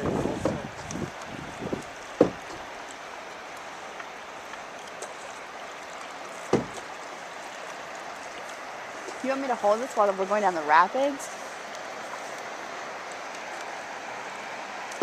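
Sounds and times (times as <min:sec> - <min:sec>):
river rapids rushing: 0:00.0 - 0:15.0
hollow knock: 0:01.7 - 0:02.6, 0:06.5 - 0:06.8.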